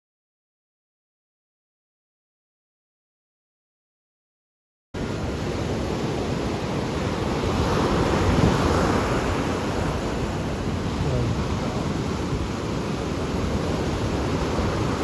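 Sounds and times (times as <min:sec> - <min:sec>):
ocean surf washing in: 0:05.0 - 0:15.0
wind rumbling on microphone: 0:05.2 - 0:15.0.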